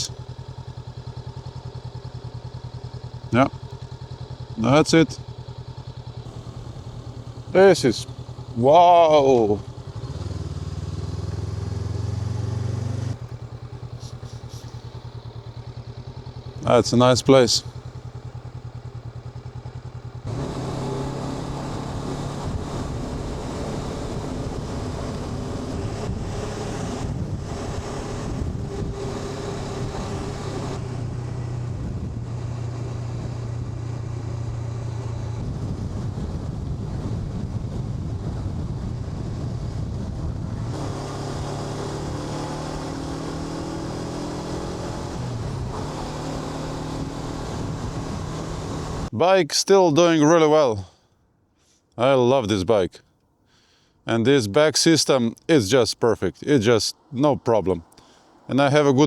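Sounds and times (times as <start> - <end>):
motorcycle engine running: 0.0 - 49.2
wind noise on microphone: 22.3 - 40.8.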